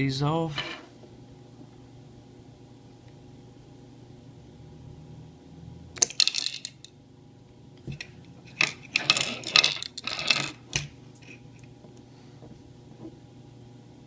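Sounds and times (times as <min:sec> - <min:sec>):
small objects clinking on surface: 0:06.0 - 0:06.9, 0:07.9 - 0:10.9.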